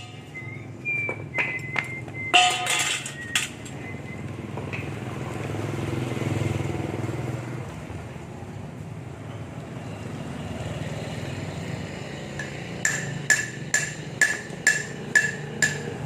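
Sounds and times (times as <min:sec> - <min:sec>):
metal parts clinking: 0:02.3 - 0:03.8.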